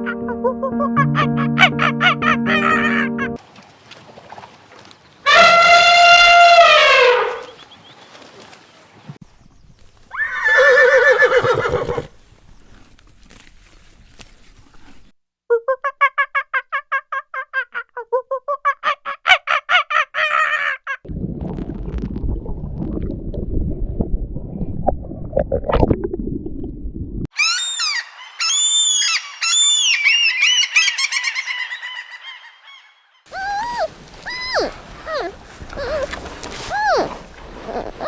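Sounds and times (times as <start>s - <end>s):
high chirping bird calls: 27.4s - 38.0s.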